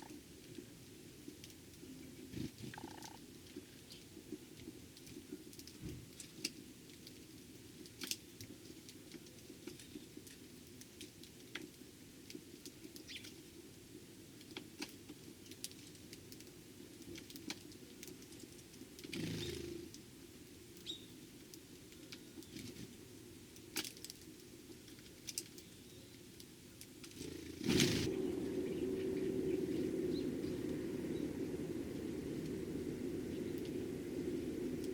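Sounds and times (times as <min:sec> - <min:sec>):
birds pecking and hopping: 0:00.0 - 0:34.9
faint bird chirp: 0:13.0 - 0:13.4, 0:19.2 - 0:19.9, 0:20.8 - 0:21.2, 0:28.1 - 0:31.6
steady low hum: 0:27.2 - 0:34.9.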